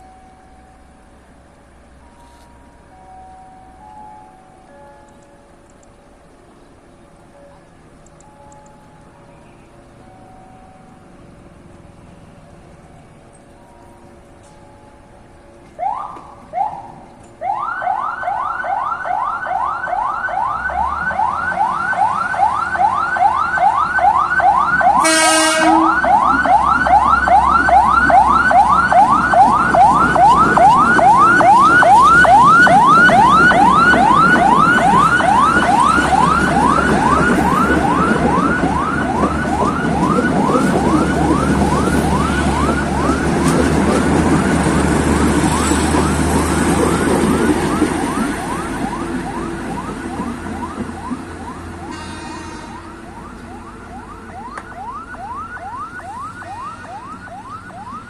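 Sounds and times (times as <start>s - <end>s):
level crossing warning alarm: 0.0s - 6.1s, 12.6s - 58.0s
train rumble: 0.0s - 17.5s, 20.3s - 58.0s
train horn blast: 24.9s - 26.3s, 51.9s - 53.0s.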